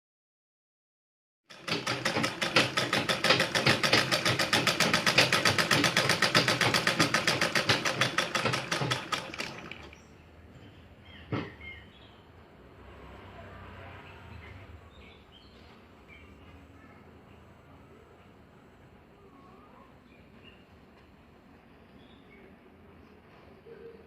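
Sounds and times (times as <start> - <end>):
sewing machine stitching clatter: 1.5 - 10.1.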